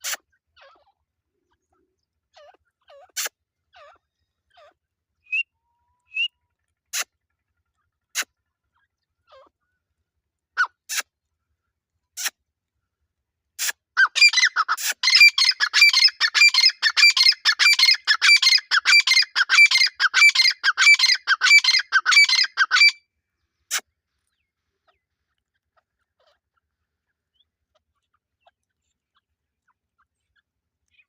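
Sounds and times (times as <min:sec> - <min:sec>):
bird calling harshly: 0:13.6 - 0:23.0.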